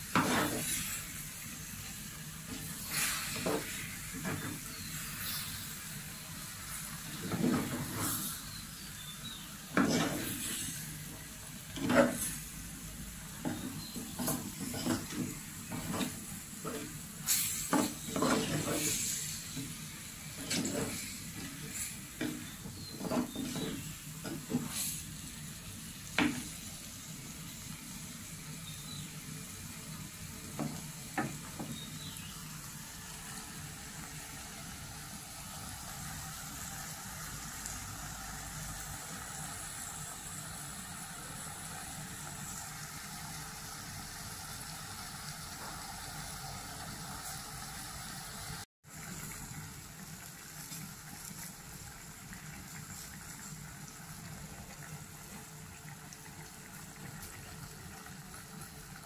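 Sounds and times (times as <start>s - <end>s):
curry sizzling in a pot: 0.0s - 59.0s
stirring clatter: 13.4s - 16.9s, 20.4s - 24.8s.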